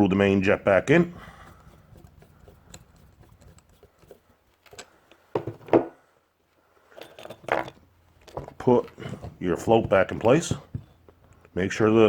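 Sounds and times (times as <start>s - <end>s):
metal parts clicking and tapping: 1.5s - 5.4s, 6.9s - 9.0s.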